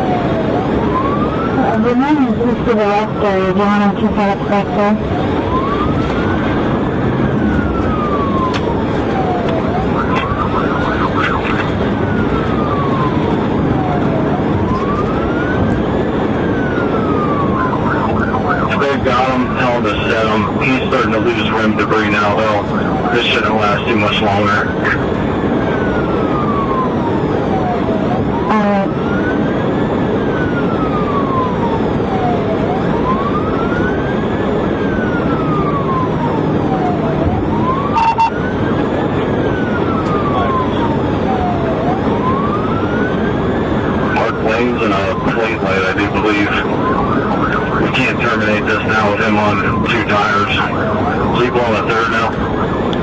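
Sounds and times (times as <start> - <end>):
car road and engine noise: 0.0 - 53.0
police siren wailing: 0.0 - 53.0
siren blip: 36.7 - 38.5.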